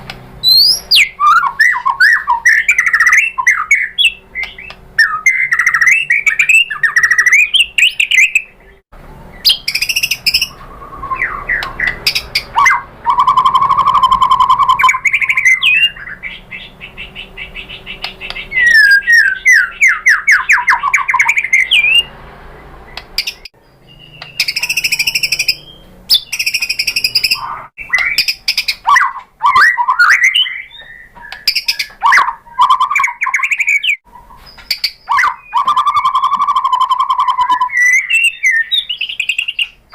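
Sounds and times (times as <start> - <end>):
songbird whistling song: 0.4 - 39.9.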